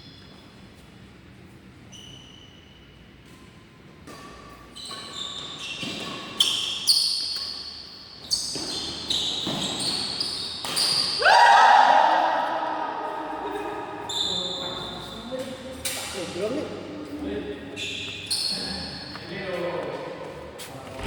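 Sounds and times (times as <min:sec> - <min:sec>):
shoes squeaking on court: 0:01.6 - 0:11.2, 0:17.7 - 0:19.7
long loud shoe squeal: 0:04.8 - 0:07.6, 0:08.2 - 0:11.4.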